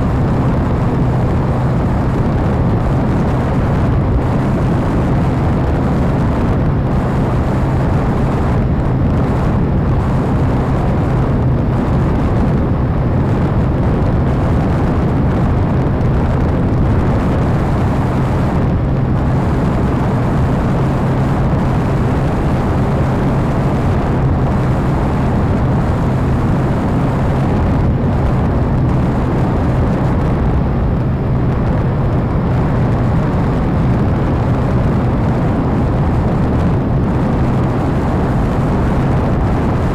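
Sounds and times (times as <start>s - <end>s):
model airplane engine and propeller: 0.0s - 39.9s
wind rush over microphone: 0.0s - 39.9s.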